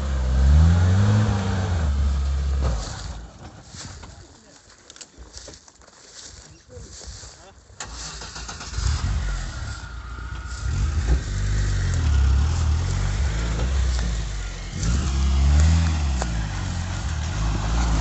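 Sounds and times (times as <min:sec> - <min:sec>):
petrol engine revving: 0:00.0 - 0:03.5, 0:07.8 - 0:18.0.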